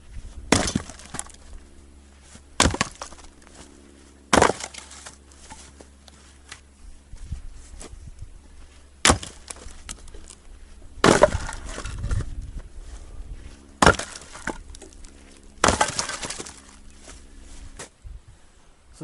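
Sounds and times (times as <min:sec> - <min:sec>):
maul striking wood: 0:00.5 - 0:01.4, 0:02.6 - 0:03.3, 0:04.3 - 0:05.8, 0:09.0 - 0:10.4, 0:11.0 - 0:12.2, 0:13.8 - 0:15.0, 0:15.6 - 0:16.8
wood splitting: 0:00.5 - 0:01.5, 0:02.6 - 0:03.5, 0:04.3 - 0:05.8, 0:09.0 - 0:10.4, 0:11.0 - 0:12.2, 0:13.8 - 0:16.8
wood pieces clattering: 0:04.3 - 0:05.7, 0:11.0 - 0:12.2, 0:13.8 - 0:15.0, 0:15.6 - 0:16.8.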